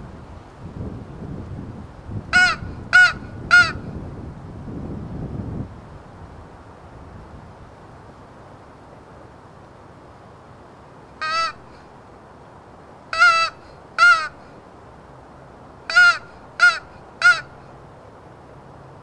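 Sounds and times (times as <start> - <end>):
crow call caws: 2.3 - 3.8, 11.2 - 11.8, 13.1 - 14.5, 15.9 - 17.6.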